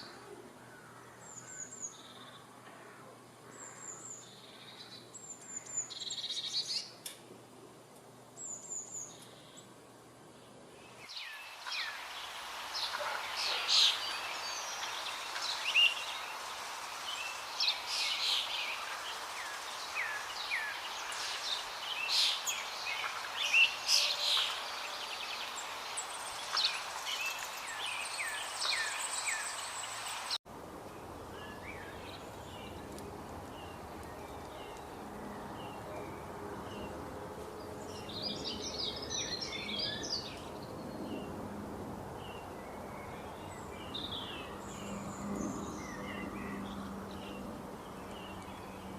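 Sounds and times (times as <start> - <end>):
steady background hiss: 0.0 - 48.9
birds chirping: 8.4 - 30.4.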